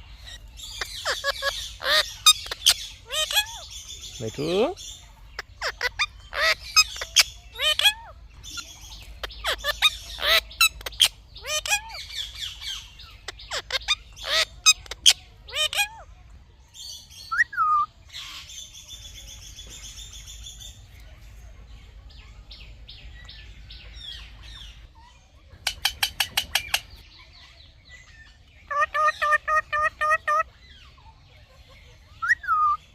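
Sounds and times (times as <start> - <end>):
parrot chirping and squawking: 0.0 - 16.1, 25.6 - 27.0, 28.6 - 30.9, 32.1 - 32.8
parrot chattering: 0.1 - 3.7, 4.3 - 16.0, 25.6 - 27.0, 28.6 - 30.5.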